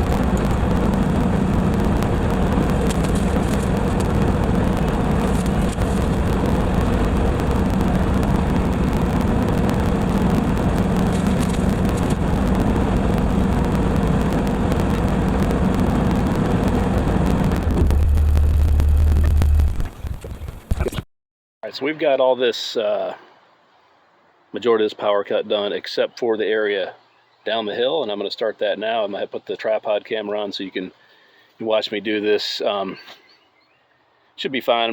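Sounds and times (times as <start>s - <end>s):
diesel tractor running under load: 0.0s - 20.6s.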